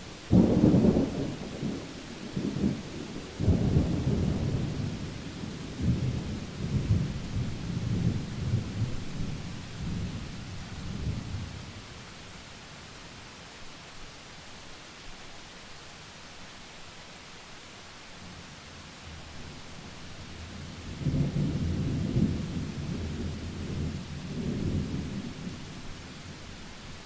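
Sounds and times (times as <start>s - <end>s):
rain hiss: 0.0s - 27.0s
thunder rumbling: 0.3s - 11.7s, 20.7s - 25.8s.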